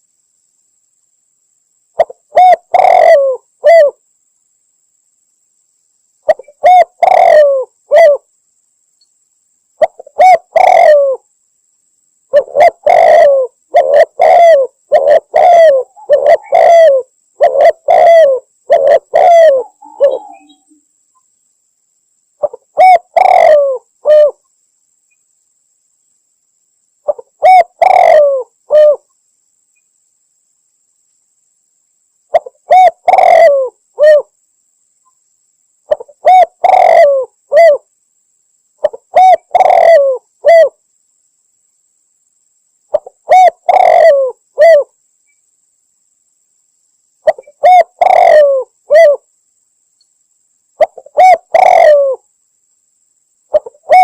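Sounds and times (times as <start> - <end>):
dove cooing: 2.0 - 4.0, 6.3 - 8.3, 9.8 - 11.2, 12.3 - 20.7, 22.4 - 24.4, 27.1 - 29.1, 32.3 - 34.3, 35.9 - 37.9, 38.8 - 40.8, 42.9 - 44.9, 47.2 - 49.2, 50.8 - 52.2, 53.5 - 54.0.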